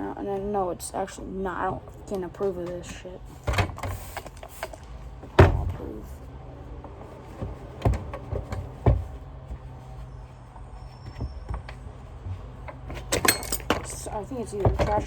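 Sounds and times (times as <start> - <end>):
vacuum parts knocking and clicking: 1.6 - 6.0, 7.3 - 9.8, 11.0 - 15.0.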